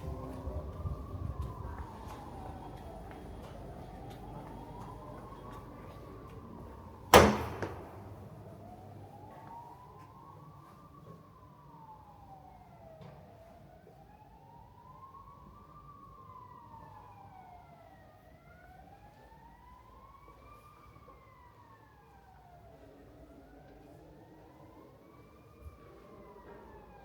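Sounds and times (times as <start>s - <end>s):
low street rumble: 0.0s - 13.0s
emergency siren wailing: 0.0s - 27.0s.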